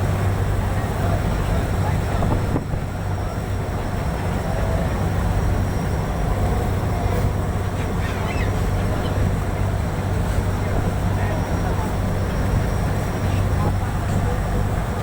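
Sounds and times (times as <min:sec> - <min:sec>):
boat engine rumble: 0:00.0 - 0:15.0
wind: 0:00.0 - 0:15.0
faint seabird calls: 0:07.7 - 0:09.3.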